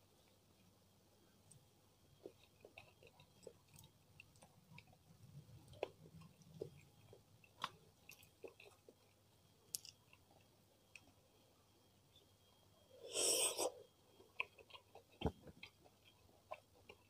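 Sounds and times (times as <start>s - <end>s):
mouth chewing food: 2.2s - 9.2s, 13.1s - 17.0s.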